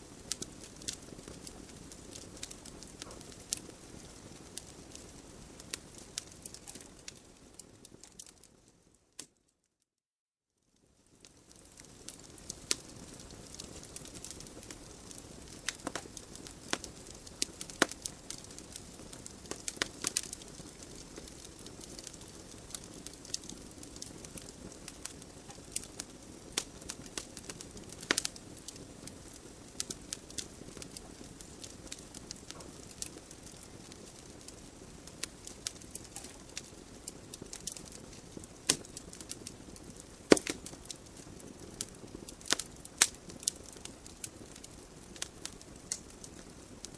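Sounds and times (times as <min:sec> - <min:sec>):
wood fire crackling and popping: 0:00.0 - 0:09.4, 0:10.9 - 0:46.9.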